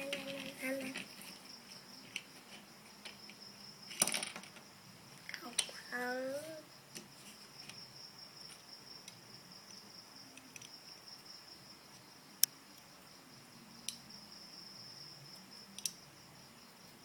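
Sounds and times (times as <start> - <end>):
cricket trill: 0.0 - 17.0
sharp clicks: 15.8 - 16.0.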